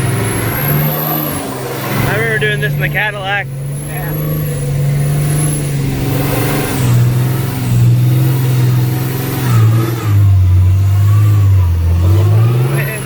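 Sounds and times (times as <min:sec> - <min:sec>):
truck engine droning from cab: 0:00.0 - 0:13.0.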